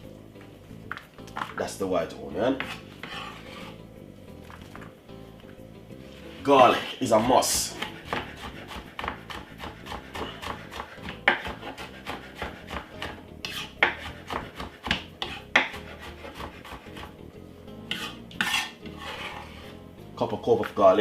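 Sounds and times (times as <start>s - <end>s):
garlic rasping on a grater: 6.8s - 17.0s.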